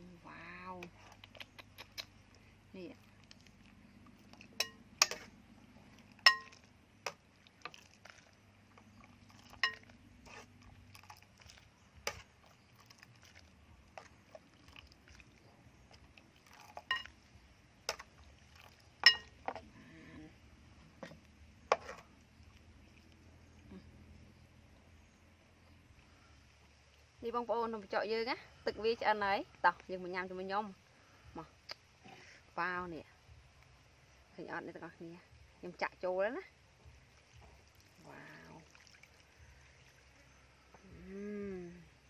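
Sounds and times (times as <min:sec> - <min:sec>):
utensil clinking against a pot: 0:04.5 - 0:05.3, 0:06.0 - 0:07.9, 0:09.0 - 0:13.0, 0:16.4 - 0:17.2, 0:17.9 - 0:19.6.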